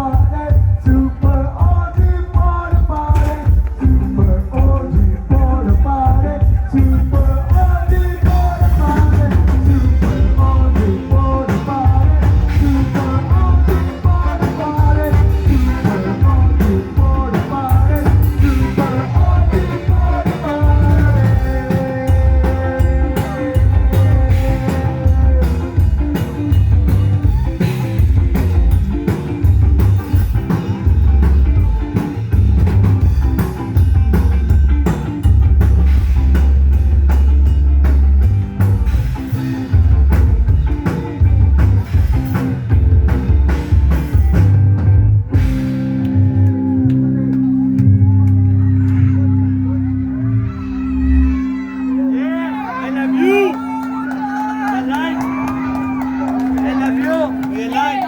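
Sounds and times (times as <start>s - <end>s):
person singing: 0.0s - 27.9s
heavy bass and drum beat: 0.0s - 58.0s
rock band playing: 0.0s - 58.0s.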